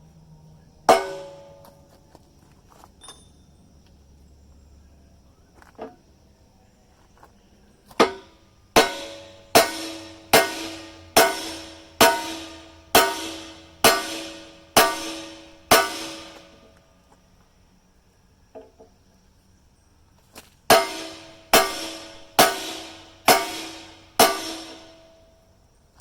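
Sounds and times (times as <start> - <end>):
hammer blows on steel: 0.9 - 1.8, 8.0 - 16.8, 20.7 - 25.4.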